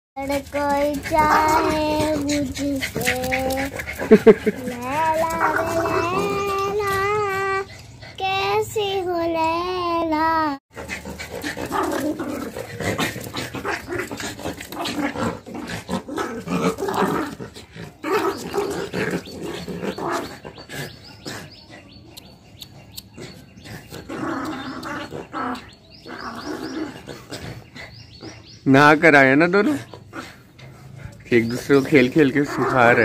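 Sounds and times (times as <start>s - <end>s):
small dogs growling: 0.2s - 8.2s, 10.7s - 33.0s.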